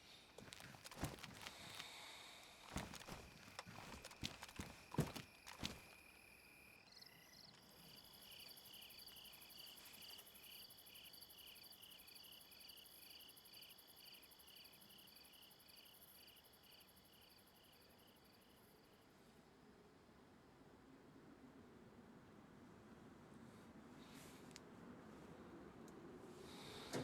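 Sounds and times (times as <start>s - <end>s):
insect chirping: 0.5s - 19.0s.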